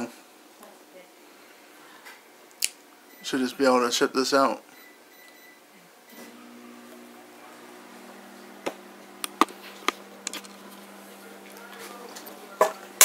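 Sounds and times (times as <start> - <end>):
computer humming: 6.2 - 13.0.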